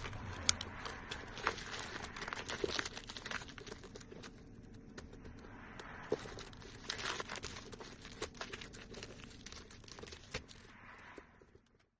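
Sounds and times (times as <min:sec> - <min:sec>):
film peeling off with crackling: 0:00.0 - 0:04.4.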